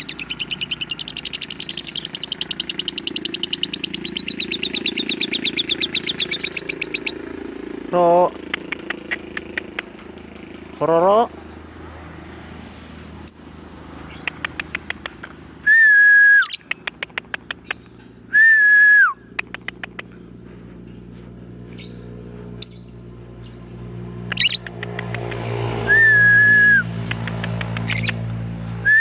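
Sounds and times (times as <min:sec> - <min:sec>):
lovebird chirping: 0:00.0 - 0:07.6, 0:16.4 - 0:18.4, 0:22.6 - 0:23.7, 0:24.3 - 0:24.9, 0:25.9 - 0:28.3
whistled notes dropping in pitch: 0:15.6 - 0:16.6, 0:18.3 - 0:19.3, 0:25.8 - 0:26.9, 0:28.8 - 0:29.0.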